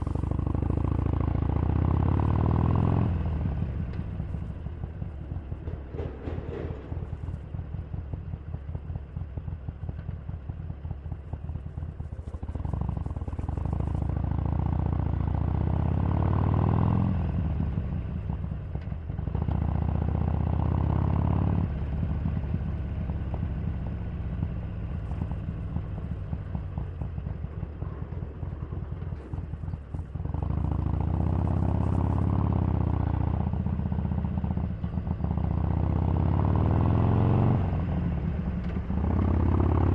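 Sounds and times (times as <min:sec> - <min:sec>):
motorcycle engine revving: 0:00.0 - 0:06.9, 0:19.3 - 0:39.9.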